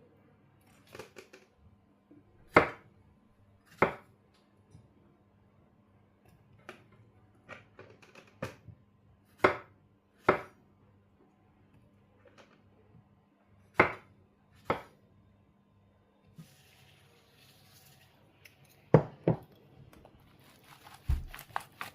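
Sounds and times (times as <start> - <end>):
knife chopping on cutting board: 2.5 - 2.8, 3.7 - 4.1, 9.4 - 10.6, 13.8 - 14.9, 20.9 - 21.9.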